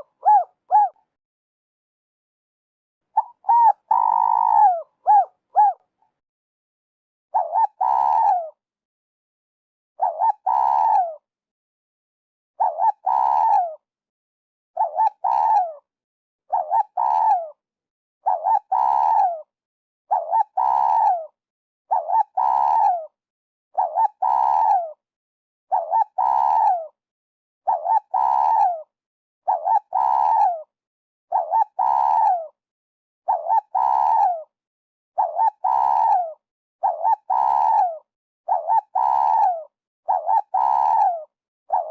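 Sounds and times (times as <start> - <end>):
dove cooing: 0.0 - 1.0, 3.1 - 5.9, 7.3 - 8.6, 10.0 - 11.2, 12.6 - 13.8, 14.8 - 15.8, 16.5 - 17.6, 18.2 - 19.4, 20.1 - 21.3, 21.9 - 23.1, 23.8 - 25.0, 25.7 - 26.9, 27.7 - 28.8, 29.5 - 30.6, 31.3 - 32.5, 33.3 - 34.5, 35.2 - 41.9.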